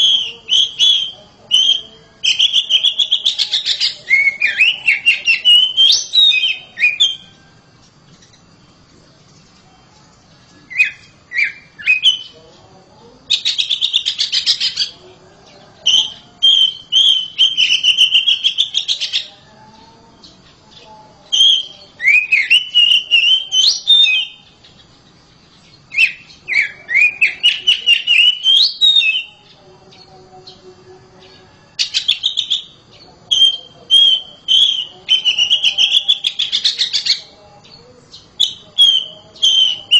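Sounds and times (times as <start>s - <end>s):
bird singing whistled phrases: 0.0s - 7.4s, 10.7s - 12.4s, 15.8s - 19.3s, 21.3s - 24.5s, 25.9s - 29.5s, 31.8s - 37.2s, 38.1s - 39.9s.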